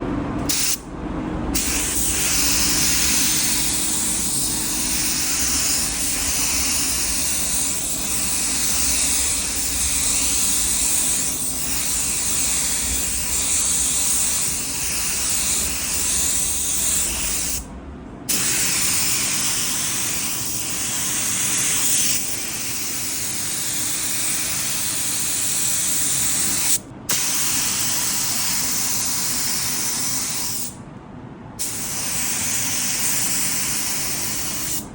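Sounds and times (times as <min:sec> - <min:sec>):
paint spray gun hissing: 0:00.5 - 0:00.8, 0:01.6 - 0:17.7, 0:18.3 - 0:30.8, 0:31.6 - 0:34.9.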